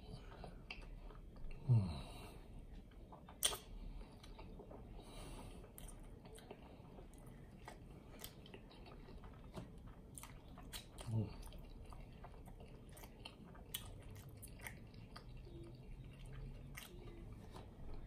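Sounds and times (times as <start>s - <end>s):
wet mouth clicks while chewing: 2.9s - 4.6s.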